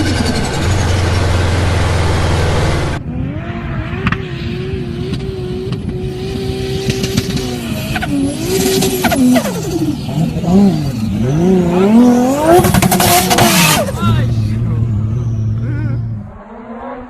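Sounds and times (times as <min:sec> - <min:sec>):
car engine running hard: 0:00.0 - 0:17.0.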